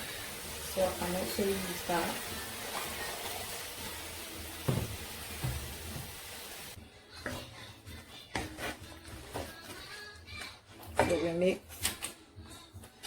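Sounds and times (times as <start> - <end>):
food sizzling in a pan: 0.0 - 6.8.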